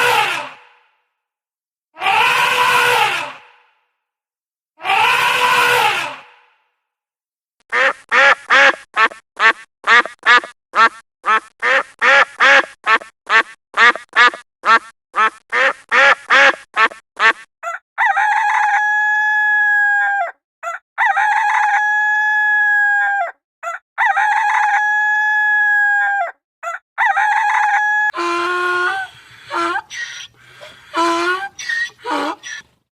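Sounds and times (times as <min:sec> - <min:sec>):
chickens clucking: 0:28.2 - 0:32.8.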